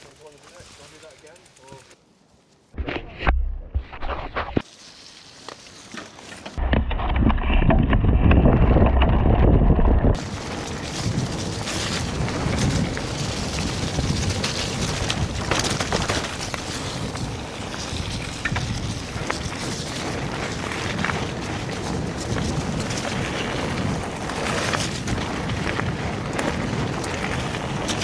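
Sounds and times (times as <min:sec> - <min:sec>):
bike frame rattling and clicking: 0:00.0 - 0:02.0, 0:10.0 - 0:28.0
tyres rolling over ground: 0:04.6 - 0:09.4, 0:10.1 - 0:28.0
wind buffeting microphone: 0:06.6 - 0:28.0.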